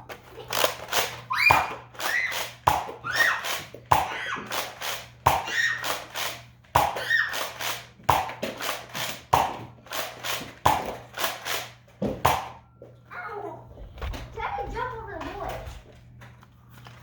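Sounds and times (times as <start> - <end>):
toy blaster firing snap: 0.4 - 12.6.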